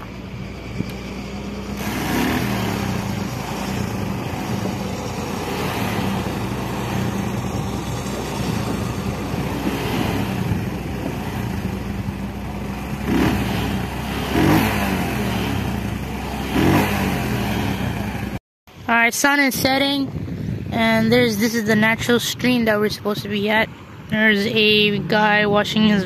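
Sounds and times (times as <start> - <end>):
motorcycle engine revving: 0.0 - 18.4.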